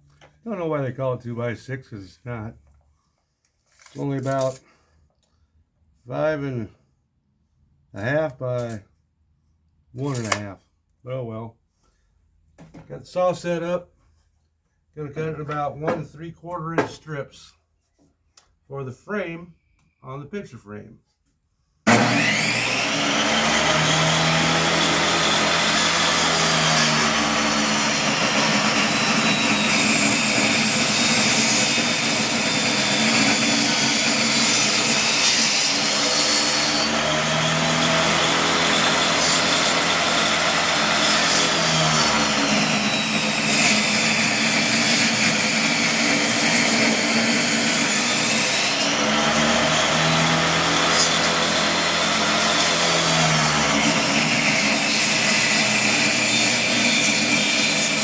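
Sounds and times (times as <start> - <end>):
table saw cutting wood: 21.9 - 58.0.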